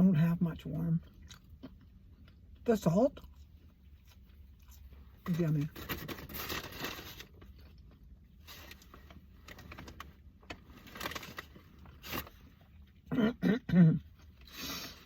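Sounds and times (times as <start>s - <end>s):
person clearing throat: 13.1s - 14.2s.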